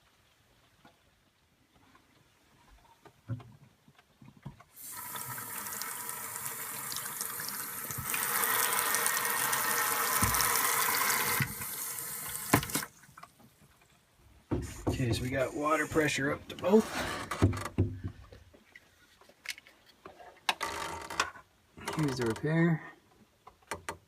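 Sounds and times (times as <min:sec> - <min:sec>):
faucet water running into sink: 0:04.8 - 0:12.9.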